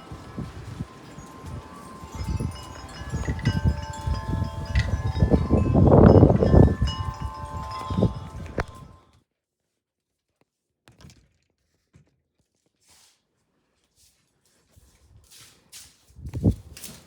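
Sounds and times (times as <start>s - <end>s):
wind chimes ringing: 0.0s - 9.0s
wind rumbling on microphone: 0.0s - 9.0s, 16.2s - 16.8s.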